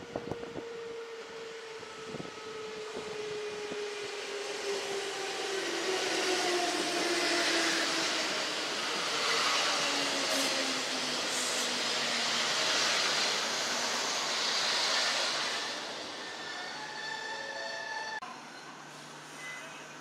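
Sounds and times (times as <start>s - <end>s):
wheels hissing on rail: 4.0s - 18.2s.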